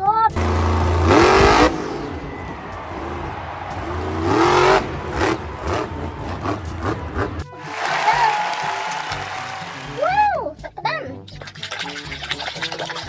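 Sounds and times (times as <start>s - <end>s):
car engine revving: 0.3s - 7.9s.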